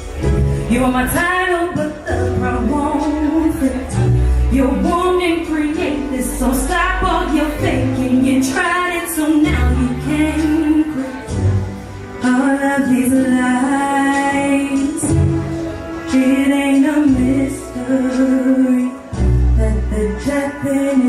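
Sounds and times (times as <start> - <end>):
woman singing: 0.0 - 21.0.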